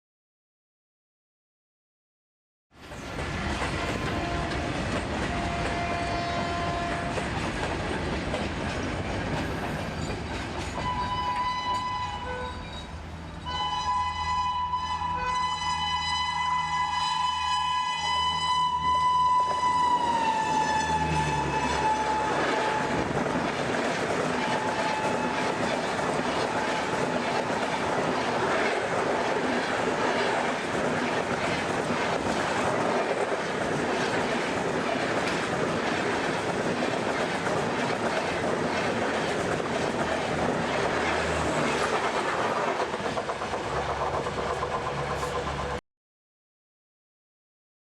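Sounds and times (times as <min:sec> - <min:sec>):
train wheels clacking over rail joints: 0:02.8 - 0:12.0, 0:19.4 - 0:45.8
locomotive horn chord: 0:05.3 - 0:07.2, 0:10.9 - 0:12.6, 0:13.5 - 0:23.0.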